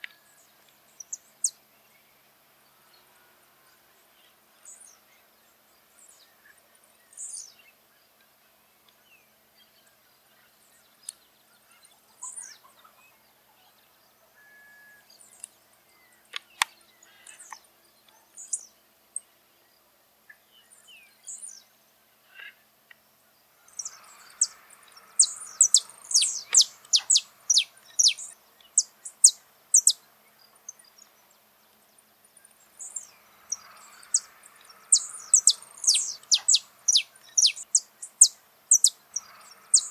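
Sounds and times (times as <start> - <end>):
finch singing: 23.7 - 31.2, 32.6 - 39.9.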